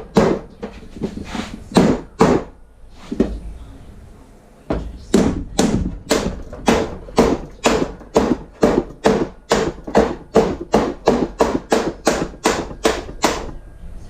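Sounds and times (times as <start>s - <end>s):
hammer tapping metal: 4.7s - 13.6s.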